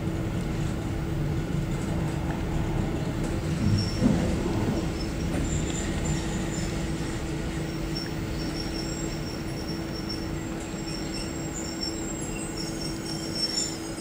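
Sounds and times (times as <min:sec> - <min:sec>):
train rumbling and humming: 0:00.0 - 0:14.0
high-pitched train squeals: 0:03.4 - 0:14.0.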